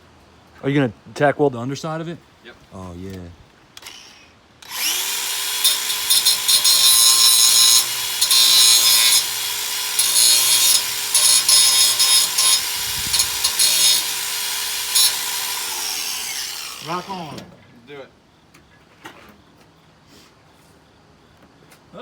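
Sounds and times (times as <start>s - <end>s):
angle grinder grinding metal: 3.8s - 17.5s.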